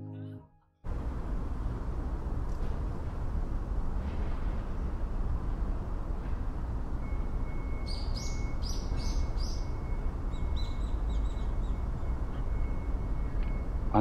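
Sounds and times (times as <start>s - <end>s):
low outdoor rumble: 0.9s - 14.0s
bird chirping: 7.1s - 13.7s.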